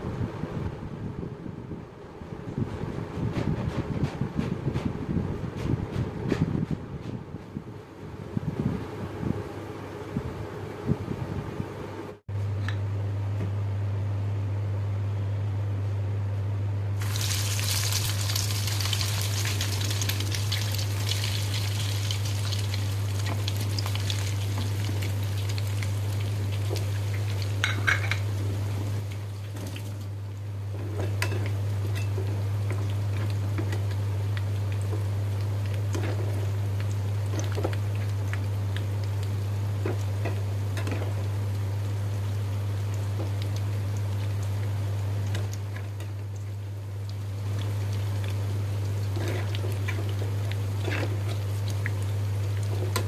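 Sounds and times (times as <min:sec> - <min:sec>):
steady low hum: 0:00.0 - 0:53.0
food deep-frying in oil: 0:17.0 - 0:53.0.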